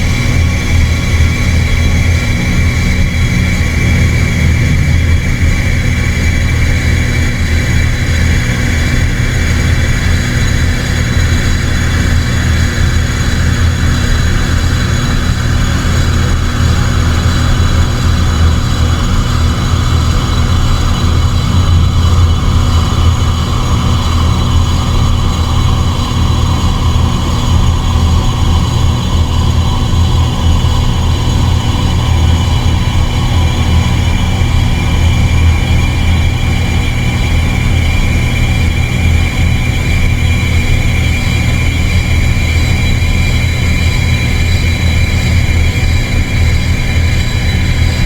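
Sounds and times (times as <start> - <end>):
dark ambient electronic drone: 0.0 - 48.0.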